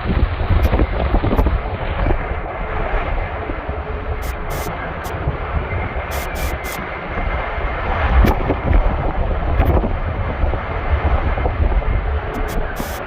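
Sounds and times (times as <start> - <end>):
wind gusting and buffeting microphone: 0.0 - 13.0.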